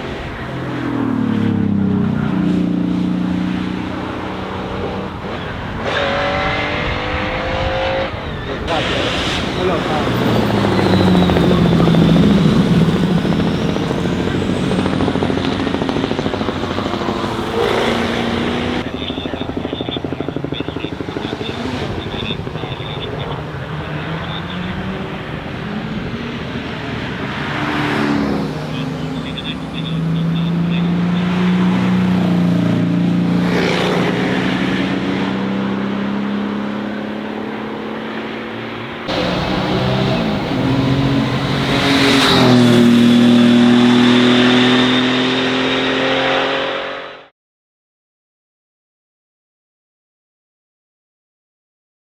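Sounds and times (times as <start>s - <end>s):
car engine passing: 0.4s - 19.4s, 20.8s - 47.2s
rush of noise: 8.6s - 29.9s, 39.1s - 46.2s
low rapid pulsing: 8.7s - 25.6s, 39.1s - 46.0s.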